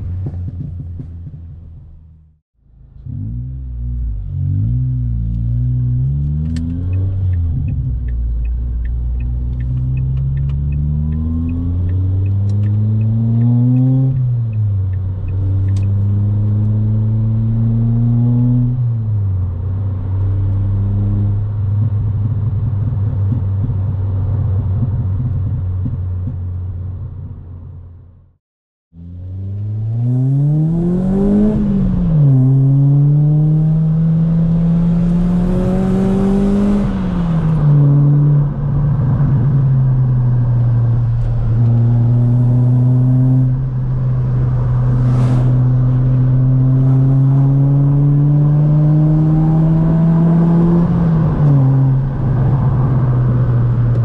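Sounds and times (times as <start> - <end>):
car engine accelerating: 0.0 - 28.3, 29.0 - 54.0
light ticking: 6.5 - 15.9.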